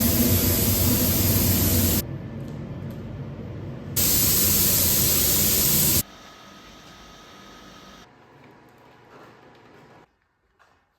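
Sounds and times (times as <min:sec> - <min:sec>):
paint spray gun hissing: 0:00.0 - 0:02.0, 0:04.0 - 0:06.0.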